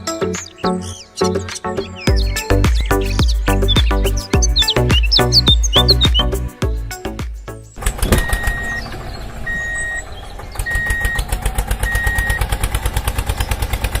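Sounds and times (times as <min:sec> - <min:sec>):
engine chugging: 0:01.9 - 0:06.5, 0:07.8 - 0:14.0
high steady beeps: 0:08.2 - 0:08.9, 0:09.5 - 0:10.1.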